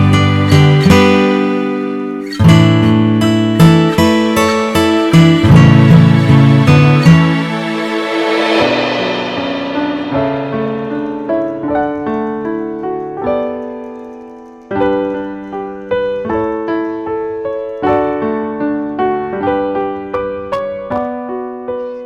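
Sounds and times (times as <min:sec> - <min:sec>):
slow gentle piano piece: 0:00.0 - 0:22.0.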